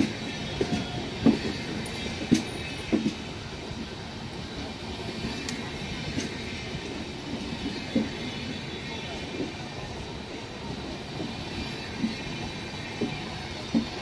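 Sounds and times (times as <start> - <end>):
wheels clacking over rail joints: 0.0 - 3.3
train wheels rumbling on rail: 0.0 - 14.0.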